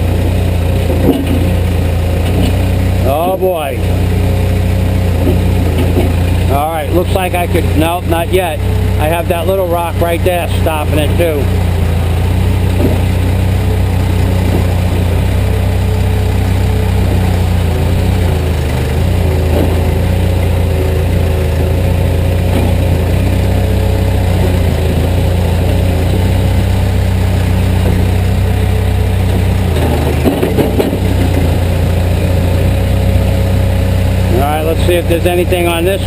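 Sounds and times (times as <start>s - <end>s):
diesel engine running: 0.0s - 36.0s
short knocks: 0.8s - 2.7s, 5.1s - 6.5s, 12.5s - 26.8s, 27.6s - 32.8s.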